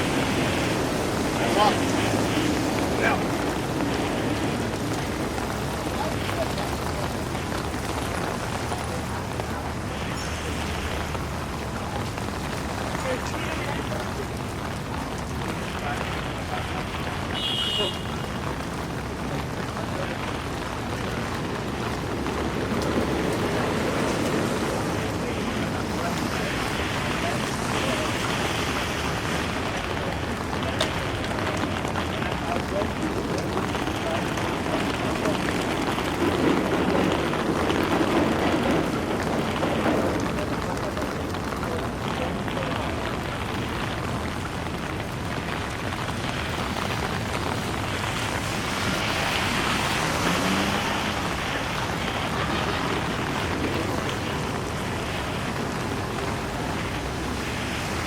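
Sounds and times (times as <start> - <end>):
heavy rain on street: 0.0 - 58.0
traffic on wet road: 0.0 - 58.0.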